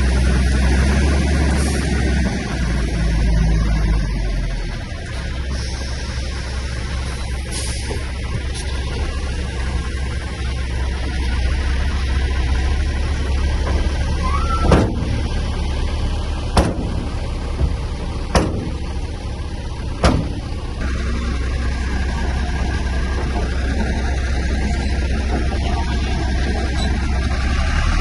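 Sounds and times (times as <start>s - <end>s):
heavy diesel machinery droning: 0.0s - 28.0s
sharp knocks: 14.6s - 15.2s, 16.6s - 18.8s, 20.0s - 20.4s.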